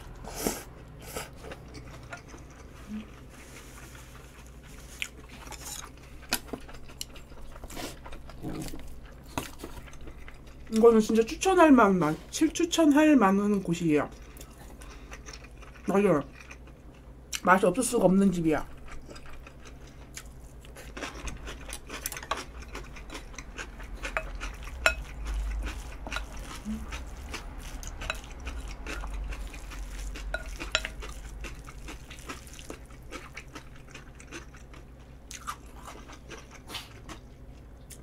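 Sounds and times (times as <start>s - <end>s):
person chewing and munching: 0.1s - 10.8s, 18.7s - 38.0s.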